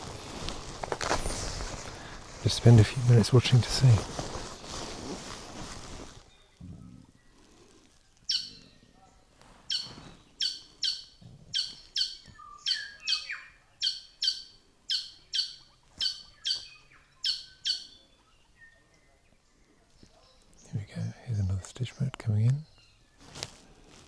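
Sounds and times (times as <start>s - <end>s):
rustle: 0.0s - 13.4s, 22.2s - 24.0s
bird sharp downsweeping calls: 8.3s - 8.6s, 9.7s - 18.1s.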